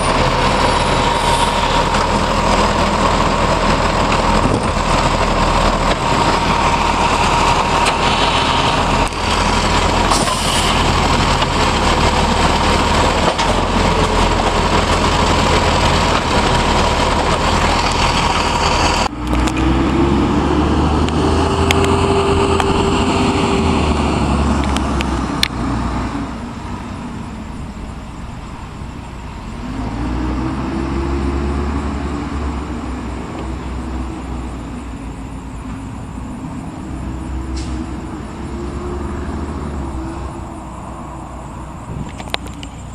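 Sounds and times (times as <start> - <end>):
steady whine: 0.0 - 30.0
diesel engine running and revving: 0.0 - 42.9.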